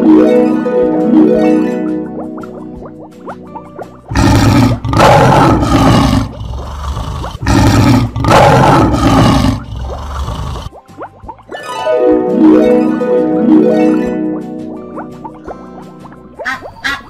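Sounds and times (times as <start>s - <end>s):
lion roaring: 4.1s - 10.7s.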